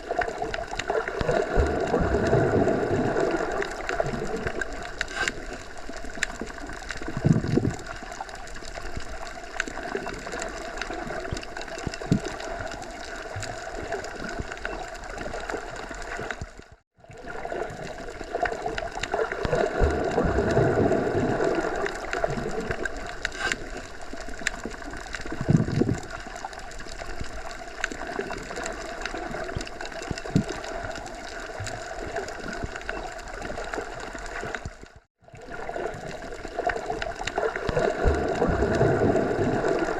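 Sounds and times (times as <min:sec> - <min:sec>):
small ticks and rustles: 0:03.6 - 0:16.8, 0:22.0 - 0:35.1.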